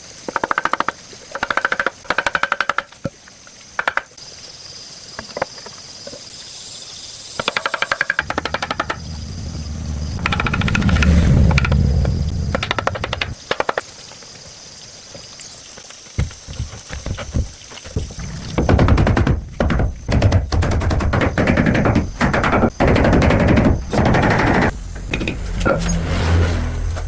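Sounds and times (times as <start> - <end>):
power tool hammering: 7.4 - 10.7, 18.8 - 27.0
engine rumble: 8.2 - 13.4, 21.3 - 27.0.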